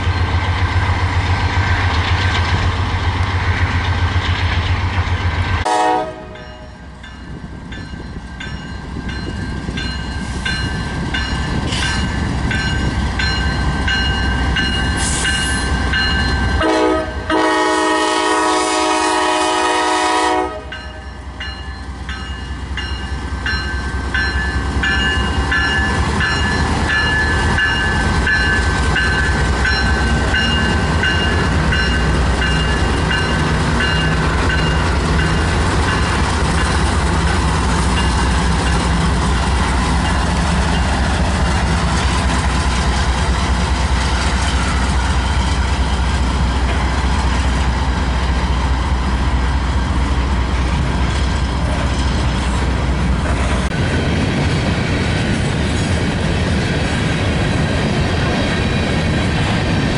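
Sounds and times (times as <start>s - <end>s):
train rumbling past: 0.0s - 59.9s
locomotive air horn: 5.7s - 6.7s, 16.6s - 20.8s.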